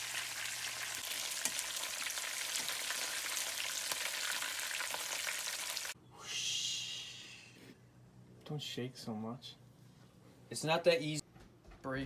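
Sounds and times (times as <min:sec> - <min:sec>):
fish frying in hot oil: 0:00.0 - 0:06.0.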